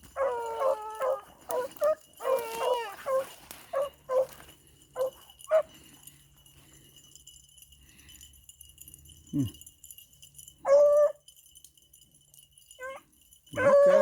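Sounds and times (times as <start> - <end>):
dog baying: 0.1 - 4.3, 12.8 - 14.0
dog howling: 0.2 - 3.3, 12.8 - 14.0.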